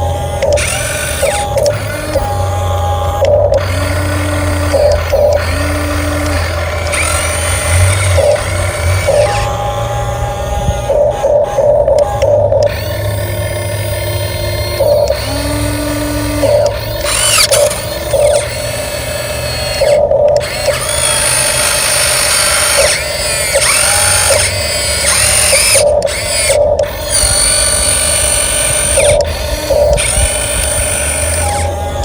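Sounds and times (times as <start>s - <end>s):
toy truck motor whining: 0.0s - 32.0s.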